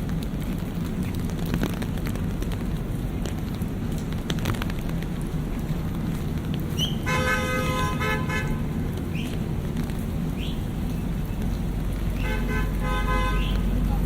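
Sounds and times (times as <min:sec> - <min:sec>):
city street traffic: 0:00.0 - 0:14.0
car horn honking: 0:07.0 - 0:08.7, 0:12.2 - 0:13.7.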